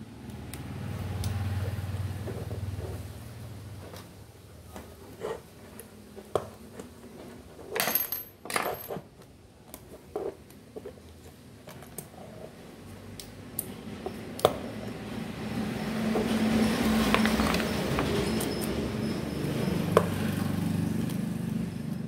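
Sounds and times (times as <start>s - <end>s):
metal parts and tools clinking: 7.7s - 9.2s.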